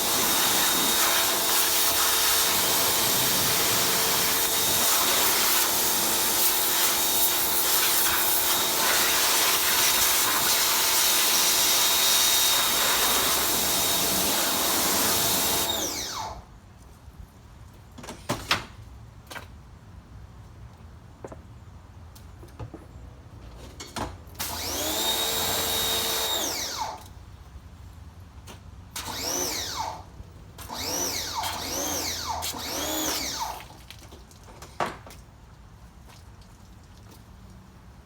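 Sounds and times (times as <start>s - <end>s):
electric motor whining: 11.5s - 16.4s, 24.6s - 27.0s.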